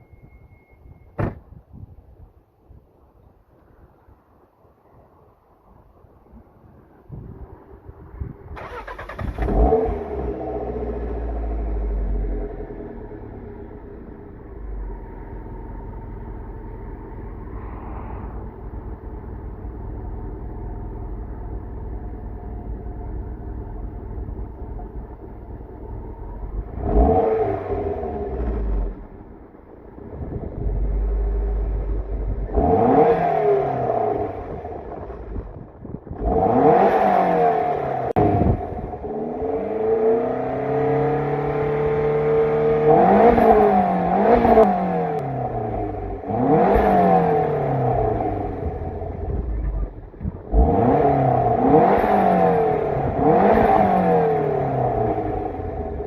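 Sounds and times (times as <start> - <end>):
turbocharged car engine revving: 8.6 - 13.4, 26.4 - 29.1, 30.6 - 56.0.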